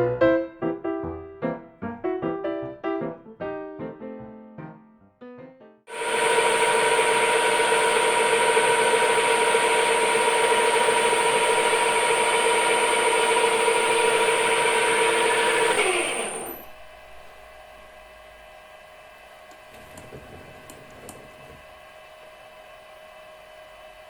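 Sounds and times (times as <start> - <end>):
lathe boring bar squealing: 5.9 - 16.7
lathe machine hum: 5.9 - 24.0.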